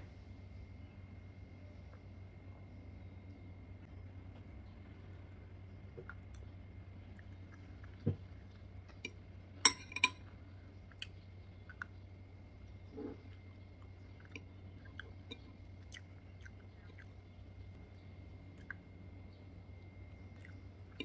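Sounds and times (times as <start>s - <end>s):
faint steady hum: 0.0s - 21.0s
chewing pasta: 6.0s - 9.3s, 10.2s - 21.0s
cutlery clinking on glass bowl: 9.7s - 10.2s.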